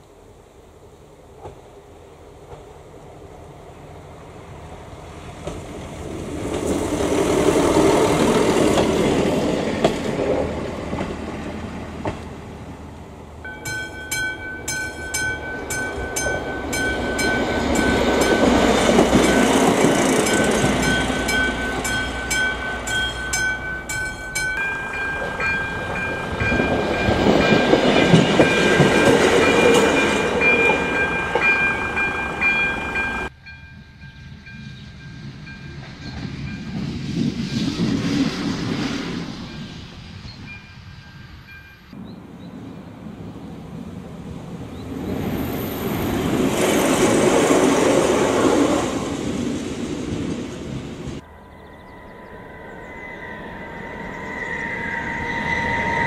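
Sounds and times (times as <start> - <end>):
railcar passing: 0.2 - 56.0
train passing: 0.2 - 56.0
crossing warning signal: 13.4 - 36.8.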